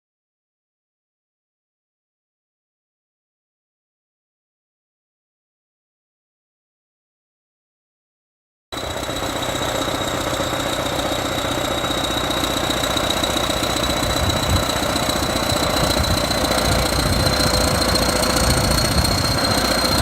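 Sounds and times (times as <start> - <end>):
diesel engine with clattering knock: 8.8 - 20.0
thin high whine: 8.8 - 20.0.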